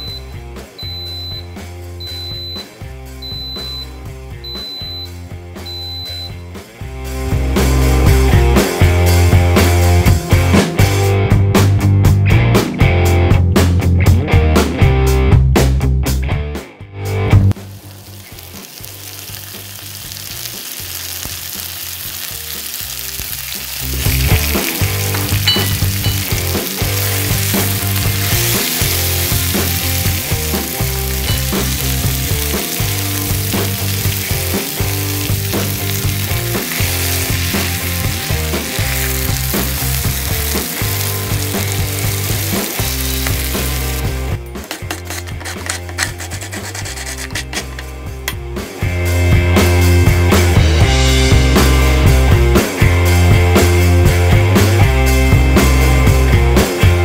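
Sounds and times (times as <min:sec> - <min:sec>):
spices sizzling in hot oil: 0:17.5 - 0:47.3
spatula stirring pan: 0:44.7 - 0:47.8.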